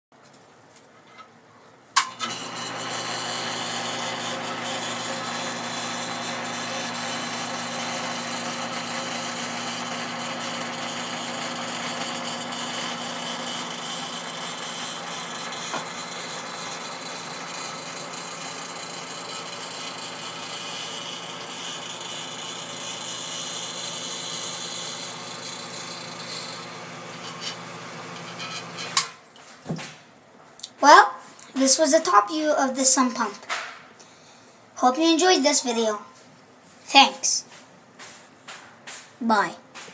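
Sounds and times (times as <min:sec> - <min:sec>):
pump motor hum: 0:02.1 - 0:29.0.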